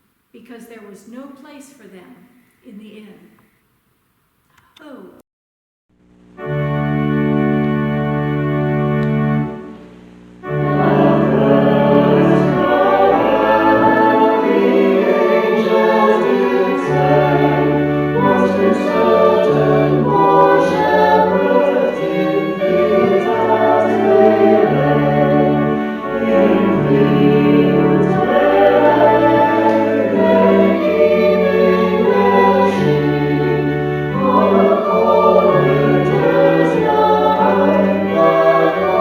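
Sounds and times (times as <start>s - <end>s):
organ-like hymn music: 6.2s - 39.0s.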